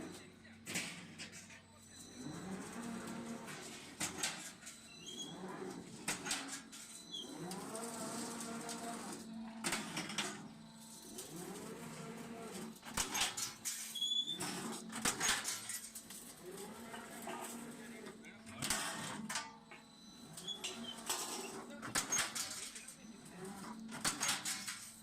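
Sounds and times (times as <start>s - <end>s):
machine motor hum: 2.0s - 4.4s, 5.0s - 13.5s.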